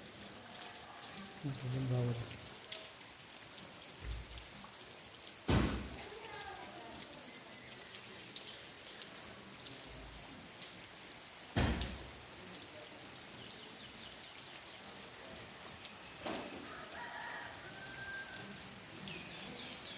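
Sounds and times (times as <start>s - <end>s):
rain pattering: 0.0s - 19.9s
loud thump: 5.5s - 6.0s, 11.6s - 12.0s.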